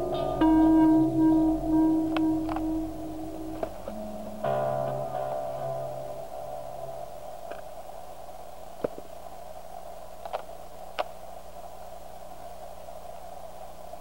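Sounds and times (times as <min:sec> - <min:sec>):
guitar chord: 0:00.0 - 0:07.7
videotape hiss and hum: 0:00.0 - 0:14.0
camcorder handling clicks: 0:10.2 - 0:11.1.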